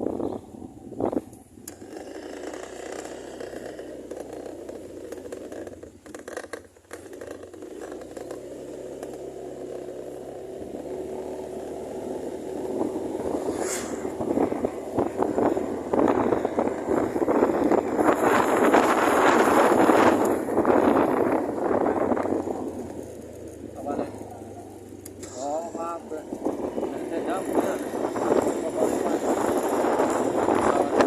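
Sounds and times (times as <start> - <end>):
wind noise on microphone: 0.0 - 1.8, 12.4 - 23.0, 25.7 - 31.0
scooter engine running: 0.0 - 31.0.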